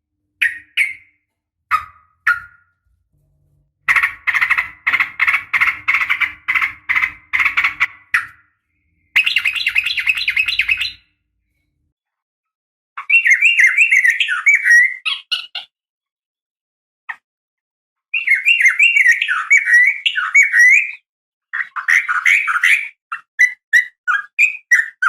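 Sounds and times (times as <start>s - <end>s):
bird chattering call: 3.9s - 8.4s.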